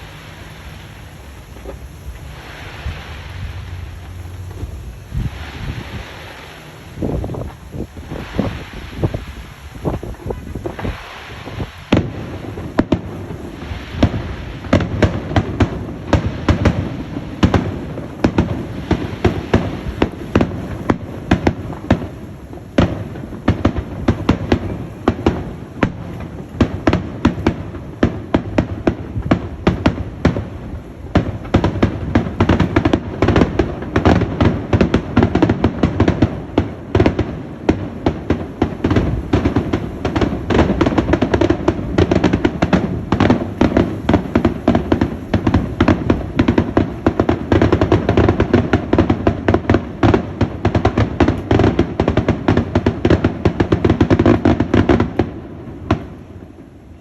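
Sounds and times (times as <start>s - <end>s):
storm wind rushing: 0.0s - 24.1s.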